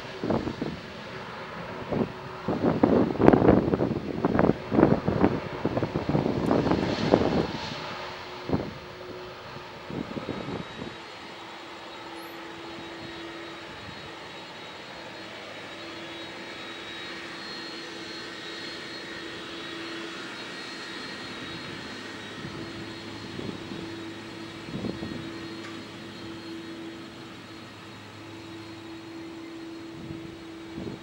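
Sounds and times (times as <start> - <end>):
jet engines with high whine: 0.0 - 31.0.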